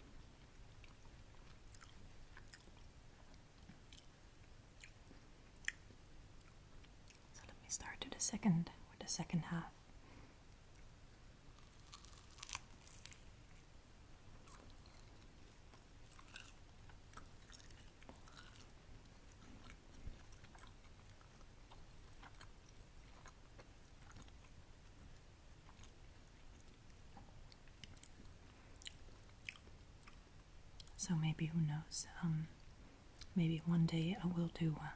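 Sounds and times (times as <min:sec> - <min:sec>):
crunchy chewing: 0:00.4 - 0:04.2, 0:11.5 - 0:13.7, 0:14.4 - 0:30.2.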